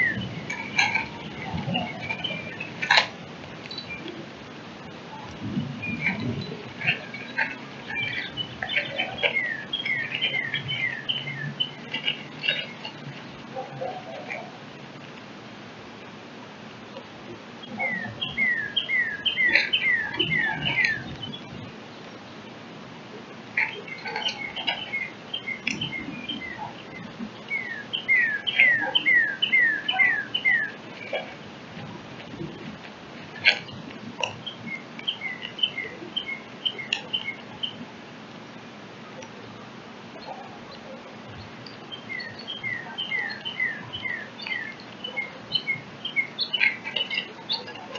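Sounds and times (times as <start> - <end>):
downslurred whistled bird notes: 0.0 - 2.7, 5.8 - 12.9, 17.6 - 21.5, 23.6 - 30.8, 41.9 - 47.8
small songbird chirping: 0.0 - 3.0, 3.6 - 4.2, 5.1 - 14.4, 17.6 - 22.6, 23.6 - 31.4, 33.3 - 37.8, 40.2 - 47.9.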